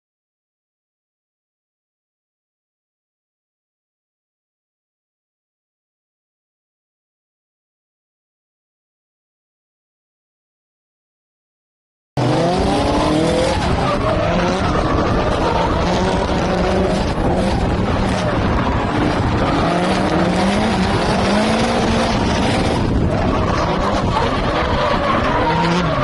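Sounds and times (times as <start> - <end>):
car engine revving: 12.2 - 26.0
tyres squealing and skidding: 12.2 - 26.0.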